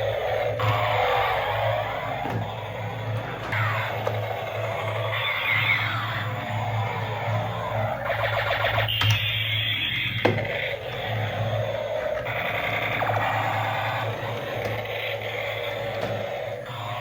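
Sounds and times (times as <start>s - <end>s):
toy electric motor humming: 0.0s - 17.0s.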